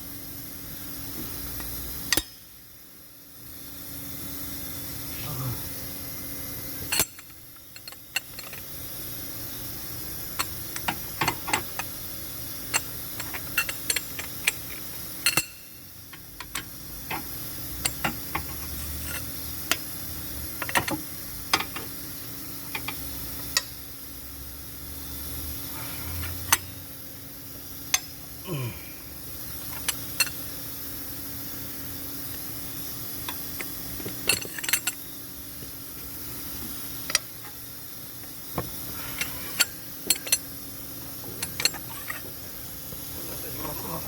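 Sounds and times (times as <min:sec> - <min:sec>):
steady background hiss: 0:00.0 - 0:44.0
metallic clicks of hand tools: 0:01.6 - 0:02.4, 0:06.9 - 0:08.6, 0:12.7 - 0:19.9, 0:22.7 - 0:23.7, 0:33.3 - 0:35.0, 0:39.2 - 0:40.5.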